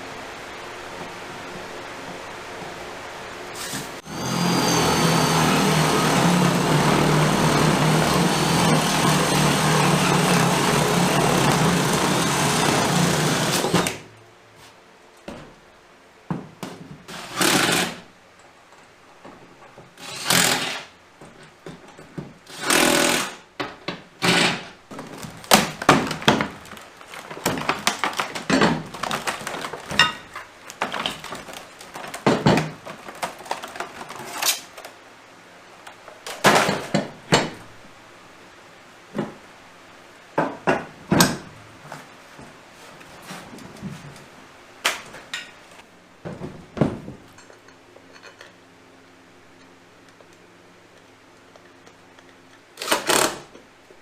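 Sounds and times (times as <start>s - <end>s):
power tool running: 4.0s - 14.1s, 17.1s - 18.0s, 20.0s - 20.9s, 22.5s - 23.4s.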